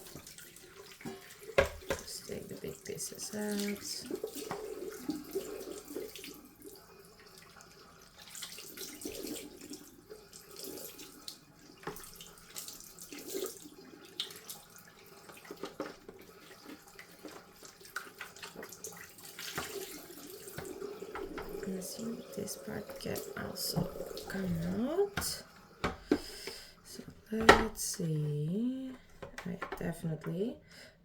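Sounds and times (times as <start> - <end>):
tap water running and splashing: 0.0 - 30.5.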